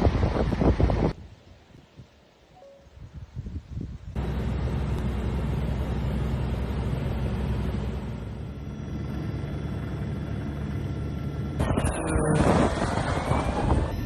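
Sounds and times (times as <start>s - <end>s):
large engine droning: 4.2s - 14.0s.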